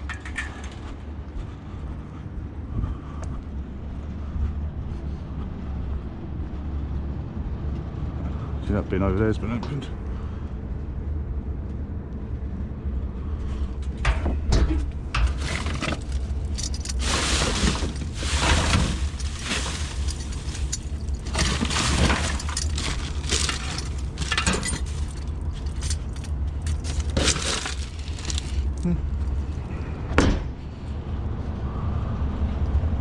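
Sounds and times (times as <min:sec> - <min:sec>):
scrap clattering and clinking: 0:00.0 - 0:01.1, 0:13.5 - 0:28.9
low rumble: 0:00.0 - 0:33.0.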